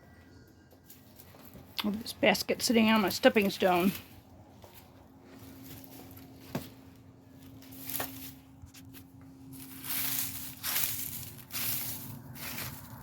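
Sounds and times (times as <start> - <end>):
rustling and crunching: 2.8 - 13.0.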